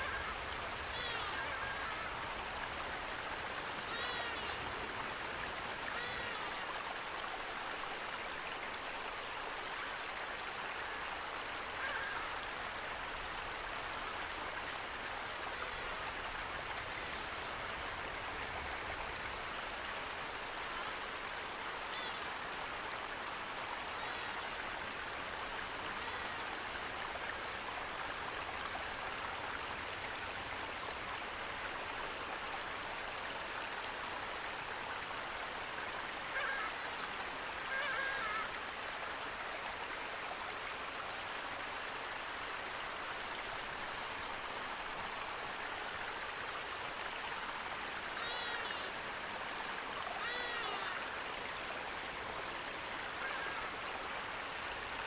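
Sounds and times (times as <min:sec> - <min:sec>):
faint bird calls: 0:00.0 - 0:02.4, 0:03.5 - 0:05.2, 0:05.8 - 0:06.8, 0:11.7 - 0:12.5, 0:21.8 - 0:22.3, 0:36.2 - 0:38.6, 0:48.1 - 0:49.0, 0:50.1 - 0:51.2, 0:52.5 - 0:53.8
running water rushing: 0:00.0 - 0:55.0.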